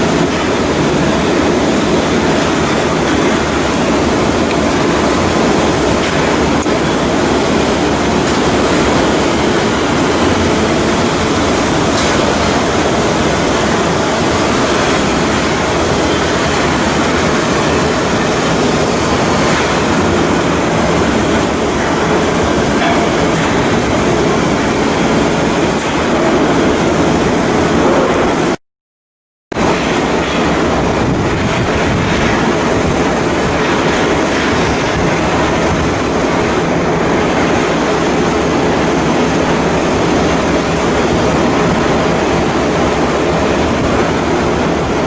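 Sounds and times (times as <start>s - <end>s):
machinery rumbling and clattering: 0.0s - 28.6s, 29.5s - 45.0s.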